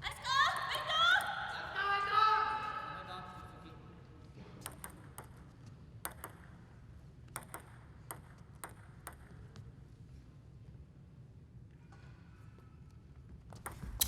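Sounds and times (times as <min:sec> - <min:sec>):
faint low hall hum: 0:00.0 - 0:14.0
table tennis ball clicking: 0:04.6 - 0:06.7, 0:07.3 - 0:09.6.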